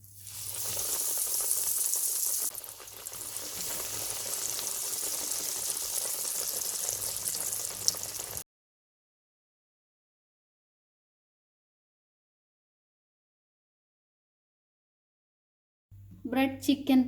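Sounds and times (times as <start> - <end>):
patties sizzling in hot oil: 0.0 - 8.4.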